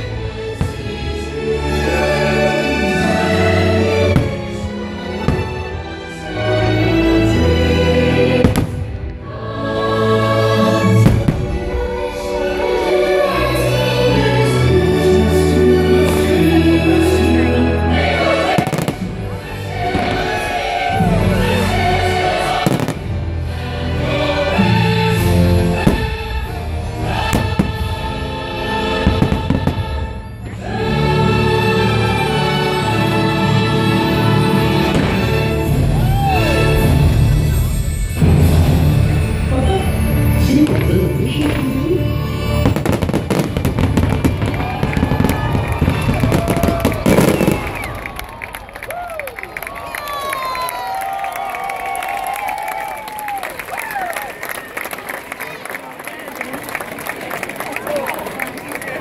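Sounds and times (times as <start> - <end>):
choral and orchestral music: 0.0 - 55.0
fireworks bangs and crackles: 4.1 - 5.8, 8.4 - 9.2, 10.8 - 12.3, 18.4 - 20.9, 22.6 - 23.3, 25.8 - 28.1, 29.0 - 30.5, 34.8 - 36.1, 40.6 - 48.8.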